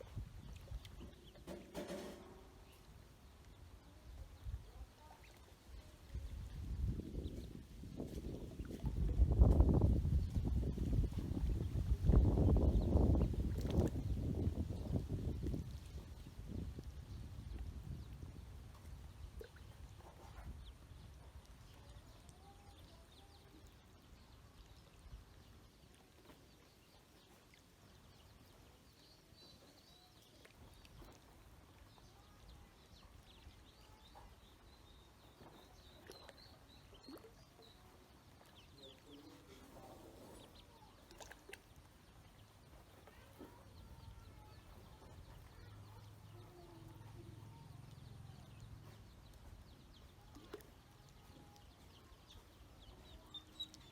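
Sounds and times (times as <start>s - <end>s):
ducklings peeping: 28.0s - 53.9s.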